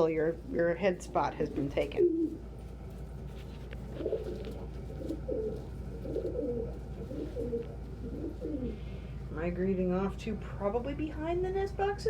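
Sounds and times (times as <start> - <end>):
pigeons cooing: 0.3 - 2.6, 3.7 - 9.2.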